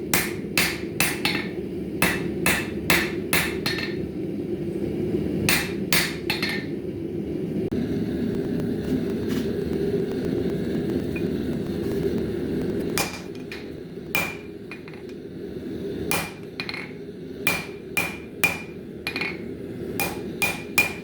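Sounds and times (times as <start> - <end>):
hammer ringing on steel anvil: 17.5 - 19.4, 20.0 - 21.0.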